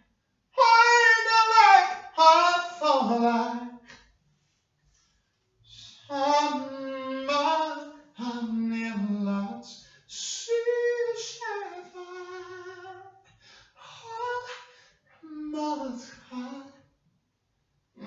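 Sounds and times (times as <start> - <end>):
person singing unaccompanied: 0.6 - 3.8, 5.7 - 13.1, 13.8 - 14.6, 15.2 - 16.8.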